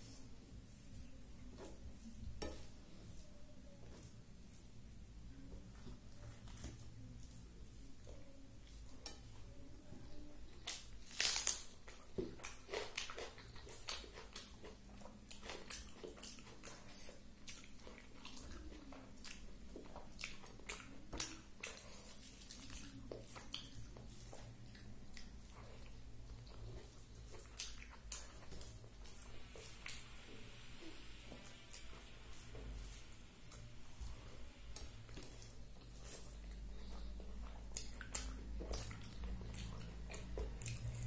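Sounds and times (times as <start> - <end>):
faint low hum: 0.0 - 41.0
chewing and wet mouth clicks: 11.9 - 30.1, 34.7 - 41.0.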